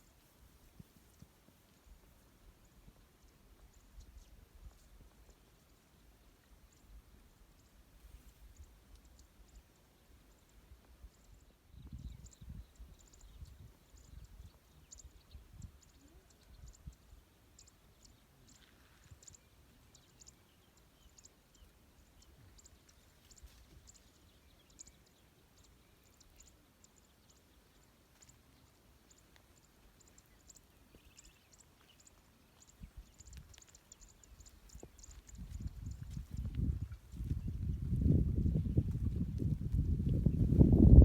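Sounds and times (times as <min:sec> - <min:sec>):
faint high ticks: 0:28.1 - 0:36.6.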